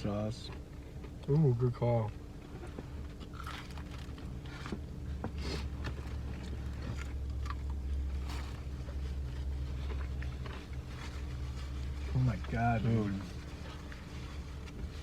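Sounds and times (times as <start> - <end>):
low steady hum: 0.0 - 15.0
food packaging crackling: 3.2 - 4.8
person chewing: 3.2 - 4.8, 5.4 - 12.0.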